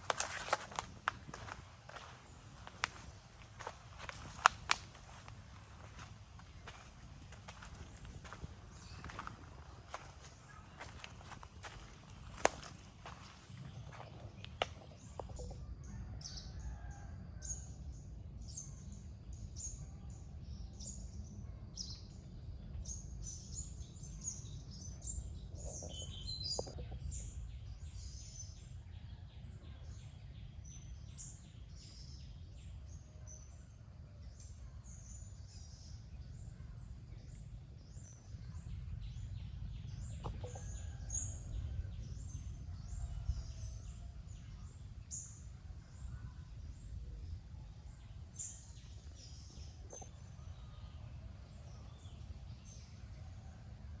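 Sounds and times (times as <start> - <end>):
steady low rumble: 0.0 - 15.8, 34.3 - 53.2
birds chirping: 0.0 - 16.0, 22.8 - 28.6, 34.4 - 53.6.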